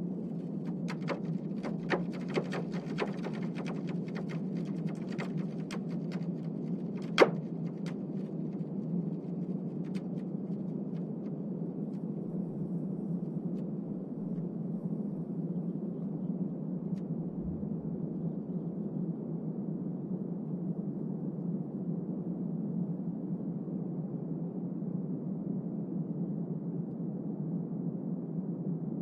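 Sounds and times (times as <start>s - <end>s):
sharp cracks and pops: 0.4s - 10.6s
low seismic rumble: 17.2s - 18.2s.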